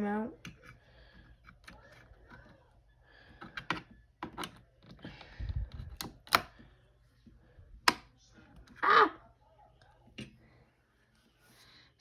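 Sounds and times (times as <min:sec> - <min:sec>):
plastic keycaps clicking and snapping: 0:03.4 - 0:05.0, 0:05.7 - 0:06.5.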